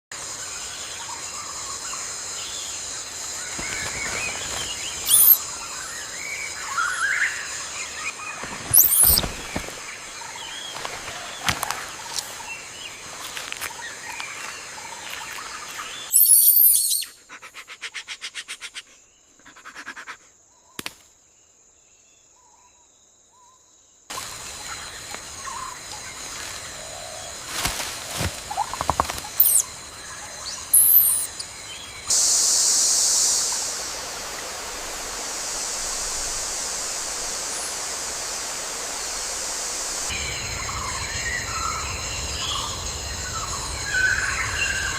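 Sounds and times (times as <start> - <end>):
high insect buzz: 2.2 - 5.7, 7.0 - 21.0, 24.1 - 43.9
bird calls: 3.5 - 5.4, 6.6 - 20.2, 28.2 - 29.6, 30.5 - 31.5.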